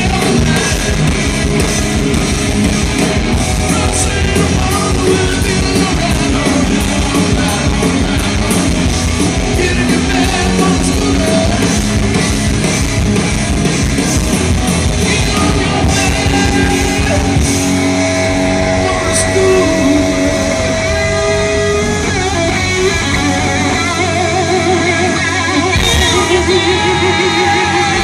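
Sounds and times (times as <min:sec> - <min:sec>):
drums: 0:00.0 - 0:28.0
electric guitar: 0:00.0 - 0:28.0
person singing: 0:03.6 - 0:08.8, 0:09.5 - 0:11.9, 0:15.0 - 0:17.7, 0:25.5 - 0:28.0.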